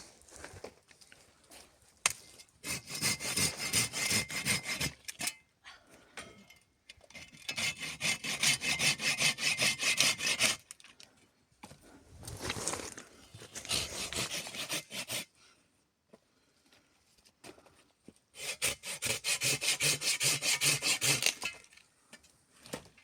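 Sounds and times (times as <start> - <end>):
hand saw cutting wood: 2.6 - 5.4, 7.2 - 10.7, 13.4 - 15.3, 18.4 - 21.6.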